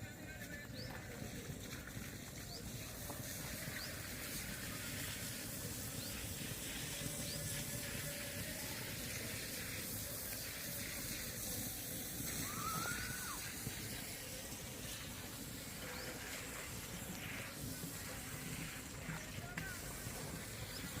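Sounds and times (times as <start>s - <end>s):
rushing outdoor background noise: 0.0s - 21.0s
whistled call: 12.2s - 14.0s.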